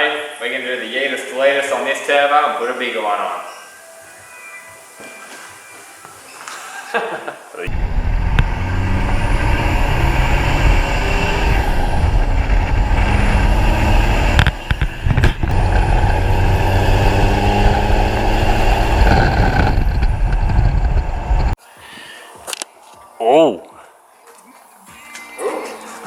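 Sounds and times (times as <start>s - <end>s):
heavy motor vehicle running: 7.7s - 21.6s.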